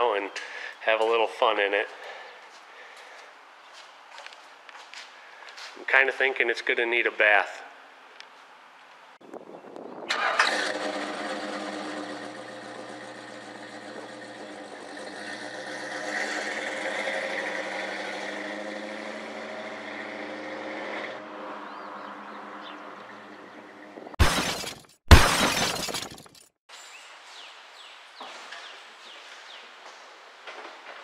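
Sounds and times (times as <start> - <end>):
car engine starting and running: 10.1 - 23.6.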